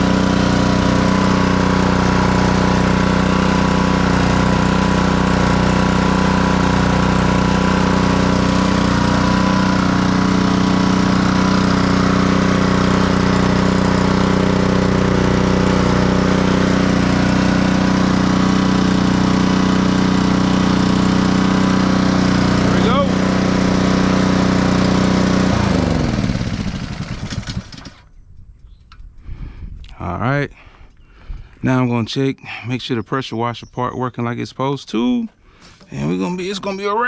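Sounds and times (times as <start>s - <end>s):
small engine running steadily: 0.0s - 28.1s.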